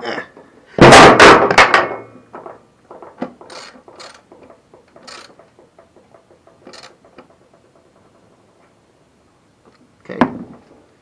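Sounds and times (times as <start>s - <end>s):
metallic clicks and clatters of tools: 3.2s - 8.3s.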